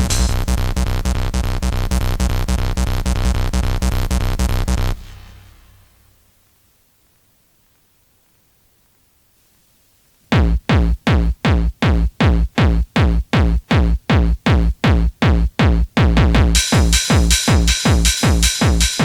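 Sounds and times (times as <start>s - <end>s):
drum-machine kick: 0.0s - 2.0s, 10.3s - 19.0s.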